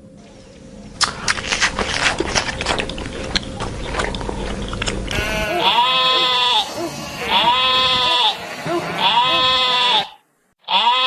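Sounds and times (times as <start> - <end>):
farm animal bleating: 5.1 - 11.0.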